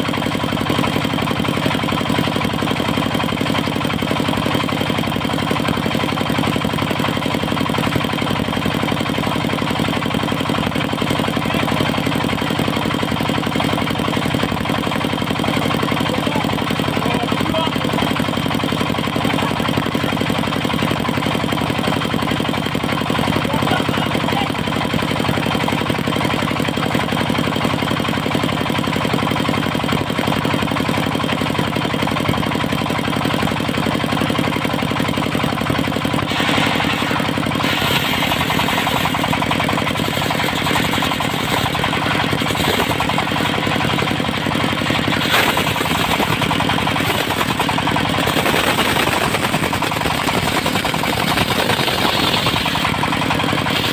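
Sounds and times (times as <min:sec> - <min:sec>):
diesel engine chugging: 0:00.0 - 0:53.9
saw blade cutting log: 0:36.1 - 0:53.9.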